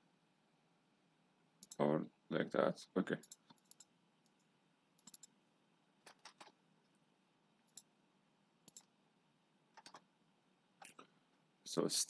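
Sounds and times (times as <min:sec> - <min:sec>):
faint computer mouse clicks: 0:03.2 - 0:05.3, 0:08.6 - 0:08.9.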